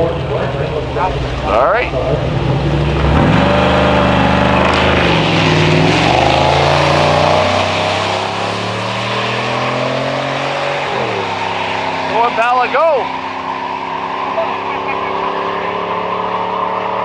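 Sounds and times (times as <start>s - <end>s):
cars accelerating: 0.0s - 17.0s.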